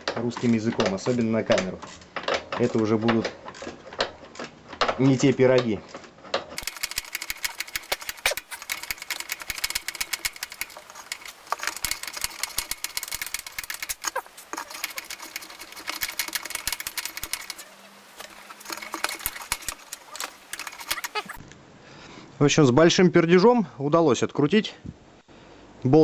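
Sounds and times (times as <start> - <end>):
socket ratchet clicking: 6.6 - 21.4.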